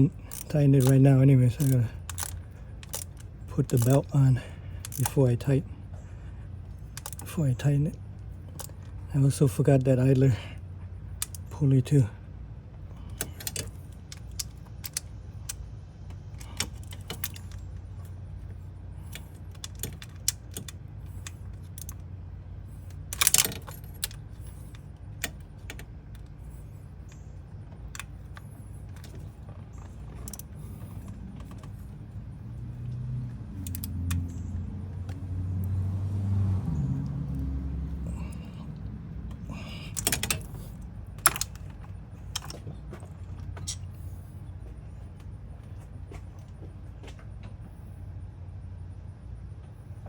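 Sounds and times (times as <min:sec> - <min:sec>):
metal tools clinking: 0:39.6 - 0:44.2.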